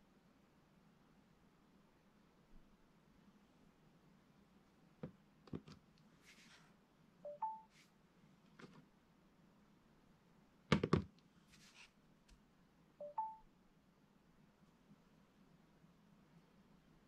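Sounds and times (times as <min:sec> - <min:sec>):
two-note electronic beep: 0:07.3 - 0:07.6, 0:13.0 - 0:13.4.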